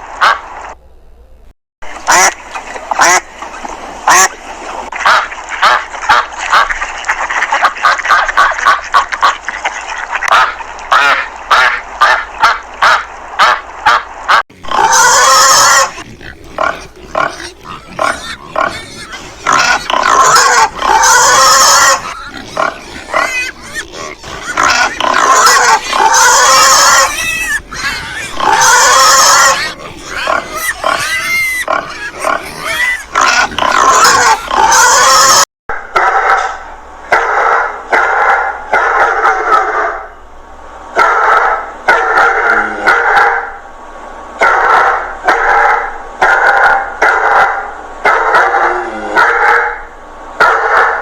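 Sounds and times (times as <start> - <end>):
pigs squealing: 10.3 - 35.5
short animal calls: 14.6 - 35.4.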